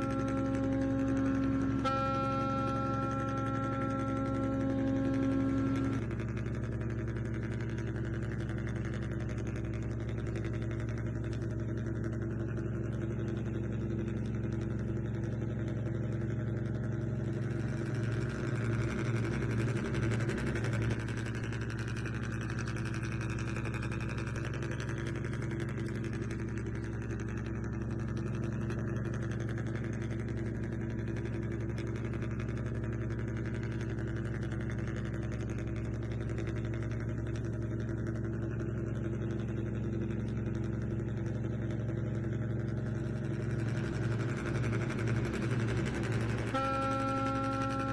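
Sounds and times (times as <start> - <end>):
remote-control vehicle engine idling: 0.0 - 47.9.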